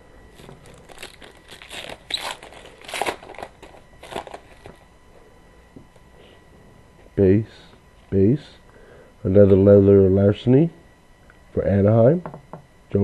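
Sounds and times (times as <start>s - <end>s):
card packaging crinkling: 0.3s - 4.9s.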